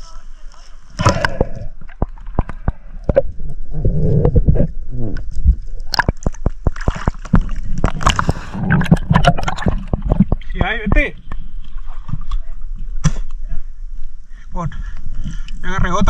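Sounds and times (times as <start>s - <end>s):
water sloshing and gurgling: 0.2s - 16.0s
sharp clicks and knocks: 5.9s - 11.5s.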